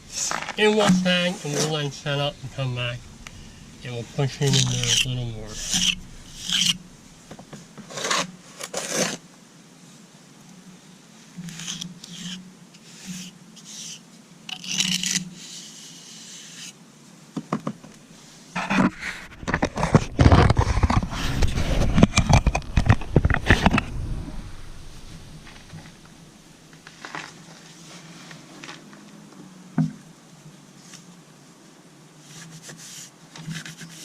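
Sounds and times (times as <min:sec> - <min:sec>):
trowel scraping mortar: 0:00.1 - 0:06.9, 0:07.8 - 0:09.2.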